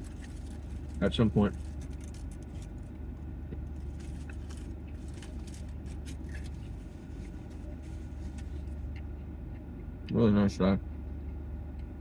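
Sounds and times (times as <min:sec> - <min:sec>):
low rumble of road vehicles: 0:00.0 - 0:12.0
person chewing food: 0:03.4 - 0:09.8.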